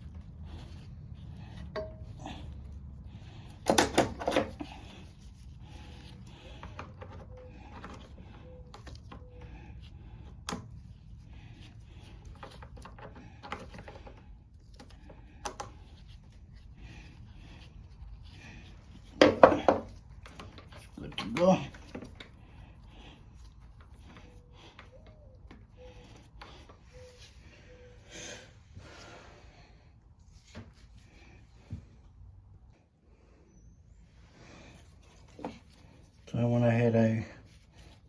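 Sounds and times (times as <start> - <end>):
tools clicking and knocking: 1.6 - 2.2, 3.5 - 4.9, 19.2 - 22.3.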